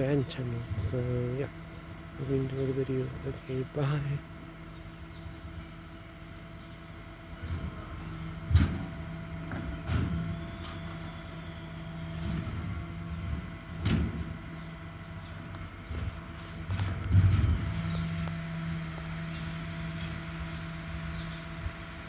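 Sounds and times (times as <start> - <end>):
garbage truck engine running: 0.0 - 22.0
sharp knocks and bangs: 7.4 - 11.1, 12.1 - 14.5.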